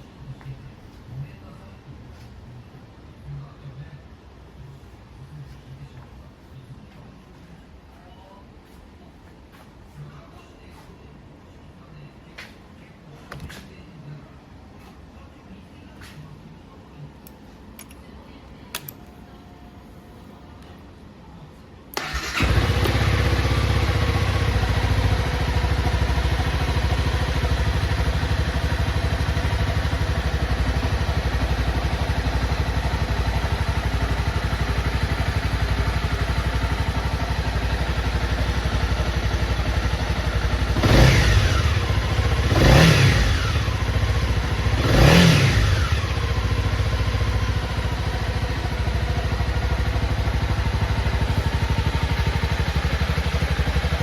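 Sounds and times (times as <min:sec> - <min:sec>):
motorcycle engine idling: 0:22.0 - 0:54.0.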